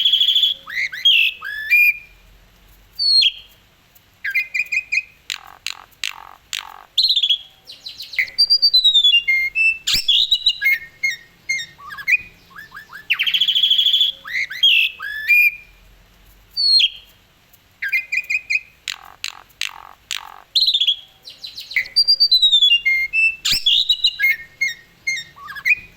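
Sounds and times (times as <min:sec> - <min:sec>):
starling singing: 0:00.0 - 0:02.1, 0:04.2 - 0:15.8, 0:17.8 - 0:25.9
harsh buzzy bird chatter: 0:00.0 - 0:25.9.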